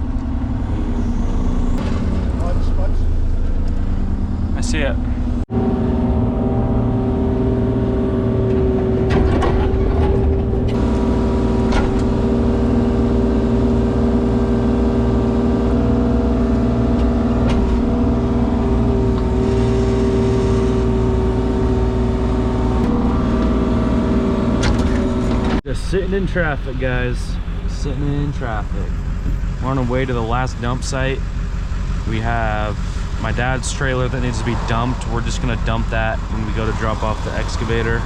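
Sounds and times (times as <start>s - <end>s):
engine running steadily: 0.0s - 38.0s.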